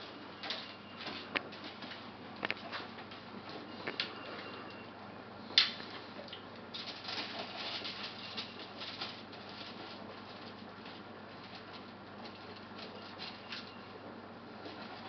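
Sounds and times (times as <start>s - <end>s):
foil crinkling and rustling: 6.7s - 13.9s.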